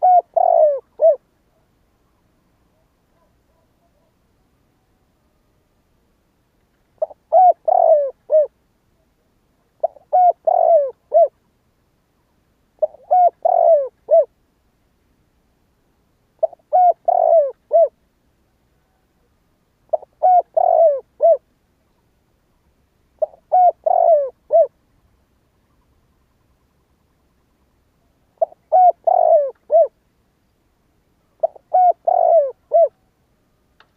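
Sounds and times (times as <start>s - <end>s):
dove cooing: 0.0s - 1.2s, 7.0s - 8.6s, 9.8s - 11.4s, 12.8s - 14.4s, 16.4s - 18.0s, 19.9s - 21.4s, 23.2s - 24.8s, 28.2s - 30.0s, 31.3s - 33.1s.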